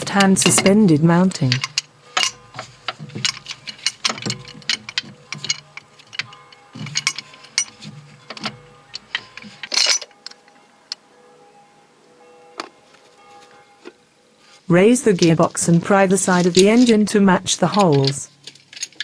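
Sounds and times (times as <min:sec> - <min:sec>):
hand tools clicking on metal: 0:00.0 - 0:10.6, 0:15.0 - 0:19.0.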